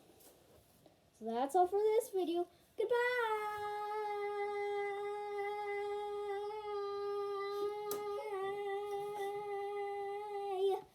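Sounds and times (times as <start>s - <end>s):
child humming a long note: 3.6s - 10.8s.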